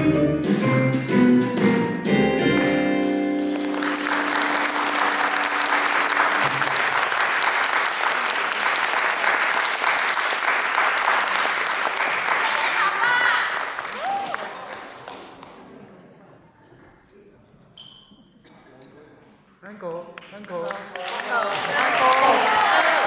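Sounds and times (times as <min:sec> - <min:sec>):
audience applauding: 0:02.6 - 0:15.7, 0:20.4 - 0:23.0.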